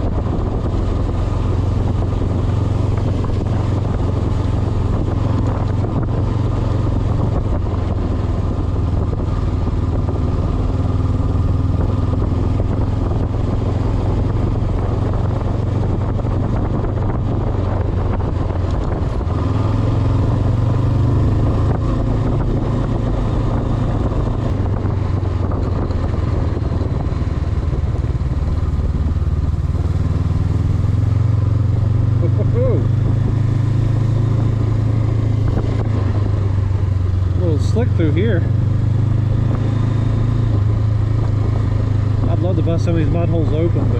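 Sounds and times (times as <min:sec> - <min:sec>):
motorcycle engine running: 0:00.0 - 0:43.9
road noise: 0:00.0 - 0:43.9
wind noise: 0:00.0 - 0:43.9.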